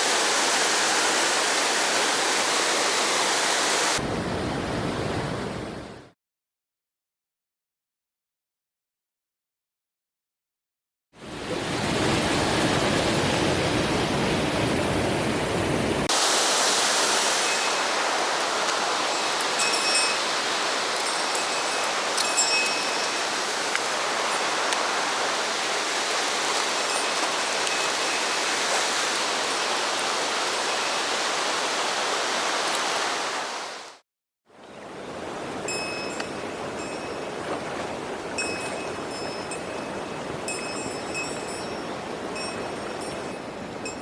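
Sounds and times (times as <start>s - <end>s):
stream rushing over rocks: 0.0s - 4.0s, 16.1s - 34.0s.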